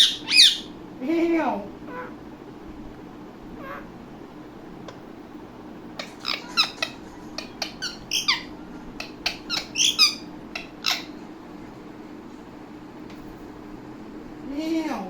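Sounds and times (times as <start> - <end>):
parakeet squawks and clicks: 6.0 - 11.2.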